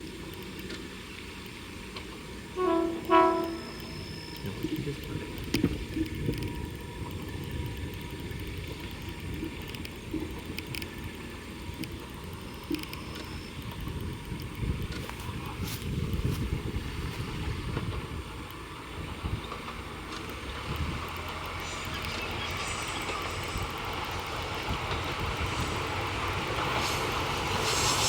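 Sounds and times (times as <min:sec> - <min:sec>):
low train rumble: 0:00.0 - 0:28.0
electric train horn blasts: 0:02.3 - 0:05.2.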